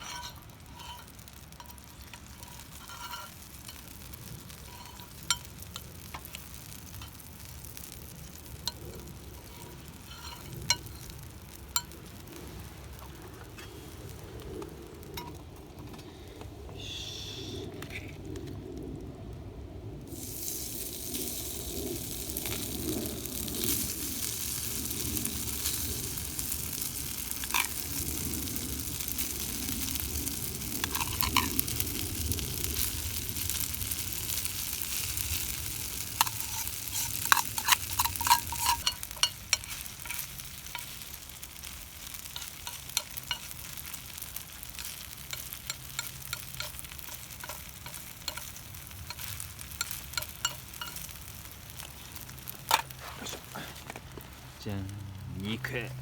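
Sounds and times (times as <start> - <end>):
food sizzling on griddle: 0.0 - 15.4, 20.1 - 56.0
utensil scraping metal plate: 36.2 - 39.7.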